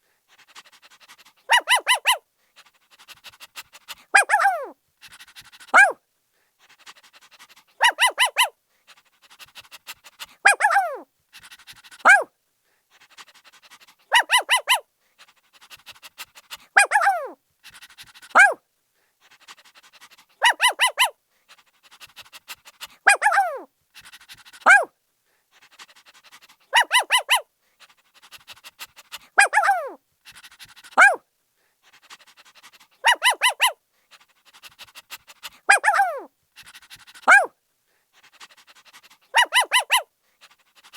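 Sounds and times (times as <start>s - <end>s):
faint breathy noise: 0.0s - 1.6s, 2.2s - 40.9s
puppy barking and yelping: 0.6s - 2.2s, 3.0s - 6.0s, 6.9s - 8.6s, 9.3s - 12.3s, 13.4s - 14.9s, 15.8s - 18.6s, 19.8s - 21.2s, 21.9s - 24.9s, 25.8s - 27.5s, 28.2s - 31.2s, 31.8s - 37.5s, 38.2s - 40.1s.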